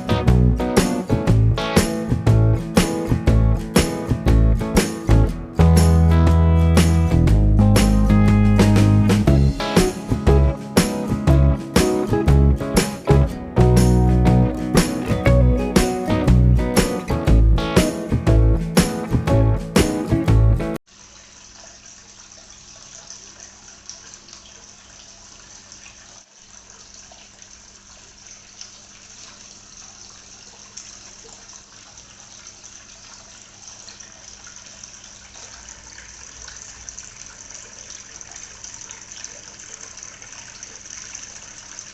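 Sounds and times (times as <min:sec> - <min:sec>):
fountain water splashing: 0:00.0 - 0:19.2
faint pump hum: 0:20.9 - 0:41.9.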